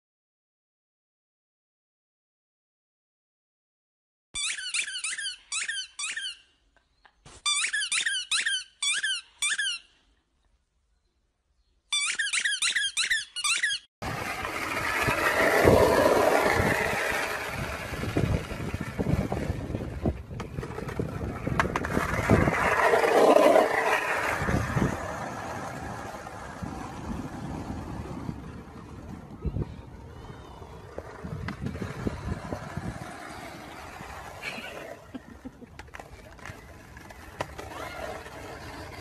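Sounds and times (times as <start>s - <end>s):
squeaky toy squeaking: 4.4s - 6.6s, 7.4s - 10.0s, 11.9s - 13.9s
skateboard rolling over asphalt: 14.0s - 39.0s.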